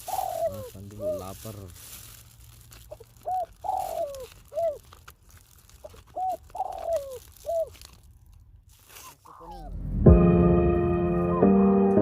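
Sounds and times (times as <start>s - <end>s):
dove cooing: 0.0s - 1.6s, 2.9s - 4.9s, 5.8s - 7.8s, 9.0s - 9.8s.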